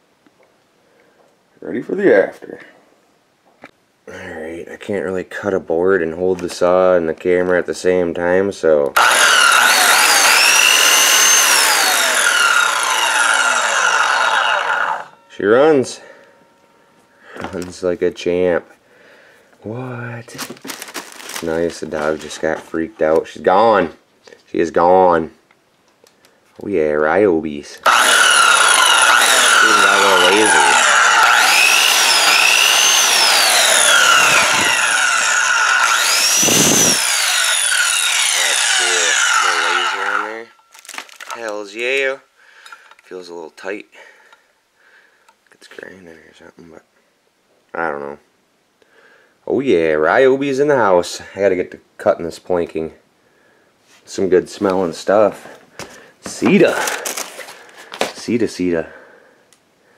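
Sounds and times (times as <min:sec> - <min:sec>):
circular saw whining: 0:09.0 - 0:16.9, 0:27.8 - 0:40.8.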